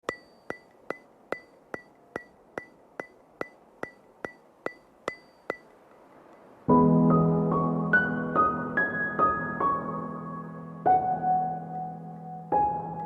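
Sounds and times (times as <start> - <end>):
sharp ringing ticks: 0.0 - 6.6.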